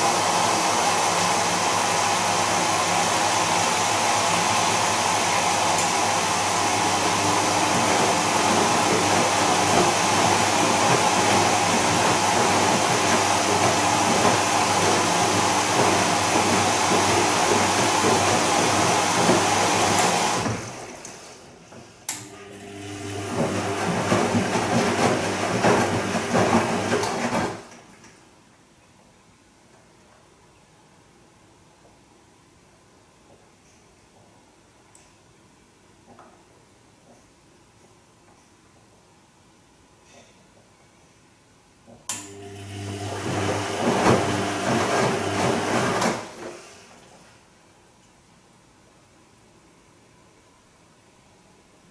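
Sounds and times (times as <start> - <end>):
washing machine churning: 0.0 - 27.9, 42.2 - 47.4
washing machine water rushing: 0.0 - 28.0, 42.2 - 47.5.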